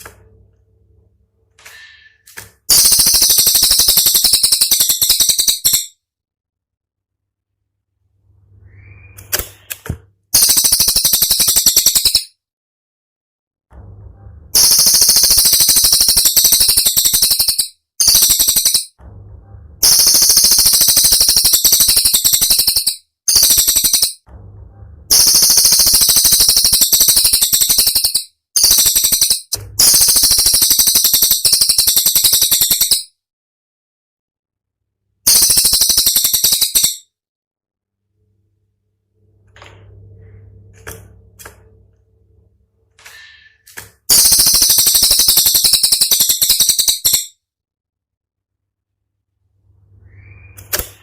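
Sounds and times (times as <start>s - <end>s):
songbird rapid high-pitched song: 2.7s - 6.0s, 10.4s - 12.3s, 14.6s - 19.0s, 19.8s - 24.2s, 25.1s - 33.1s, 35.3s - 37.0s, 44.1s - 47.4s, 49.9s - 50.7s.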